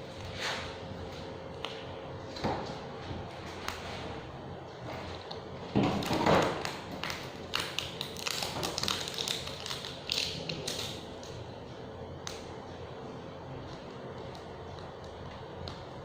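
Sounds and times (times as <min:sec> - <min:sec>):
foil rustling and crinkling: 0:06.0 - 0:10.9.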